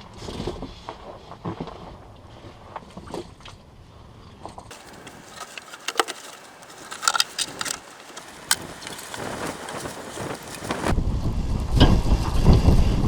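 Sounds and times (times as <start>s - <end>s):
metal tire chain rattling: 4.7s - 10.9s
wind rumble on microphone: 7.6s - 13.0s.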